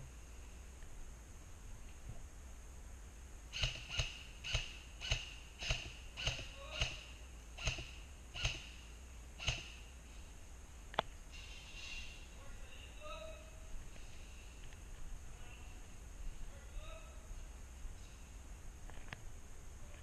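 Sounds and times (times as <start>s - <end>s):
airsoft gun shots: 3.6s - 8.8s, 9.4s - 9.8s.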